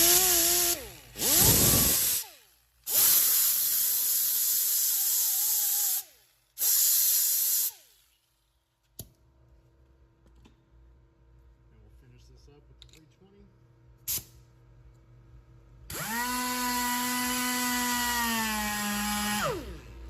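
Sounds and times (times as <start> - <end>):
hand grinder grinding metal: 0.0 - 2.2.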